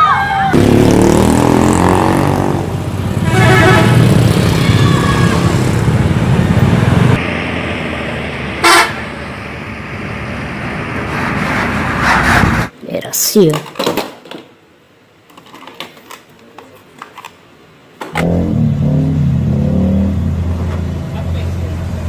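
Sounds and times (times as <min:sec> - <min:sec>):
loud engine rumble: 0:00.5 - 0:12.7, 0:18.2 - 0:22.0
vehicle horn tooting: 0:03.2 - 0:04.1, 0:08.6 - 0:09.0.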